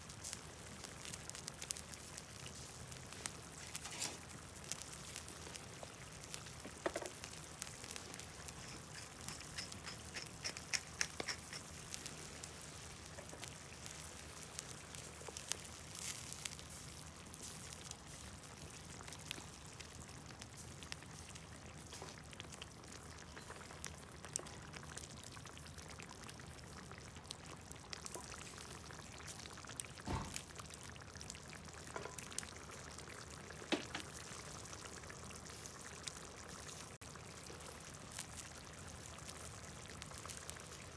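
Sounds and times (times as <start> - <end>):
fire pops and crackles: 0.0 - 40.9
stew bubbling: 0.5 - 16.1.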